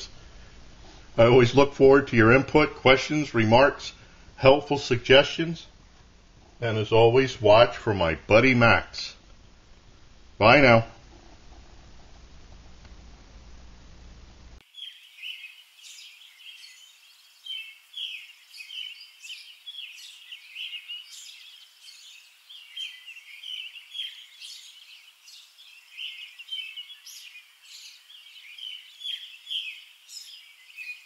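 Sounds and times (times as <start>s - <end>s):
birds chirping and trilling: 14.6s - 31.0s.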